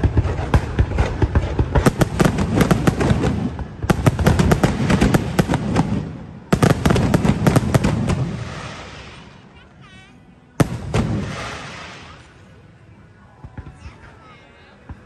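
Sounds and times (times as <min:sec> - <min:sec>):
fireworks bangs and crackles: 0:00.0 - 0:09.5, 0:10.6 - 0:12.8.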